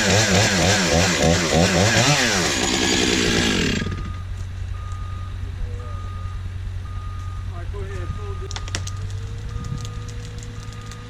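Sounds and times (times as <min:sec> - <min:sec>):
chainsaw revving: 0:00.0 - 0:04.2
low engine hum: 0:03.7 - 0:11.0.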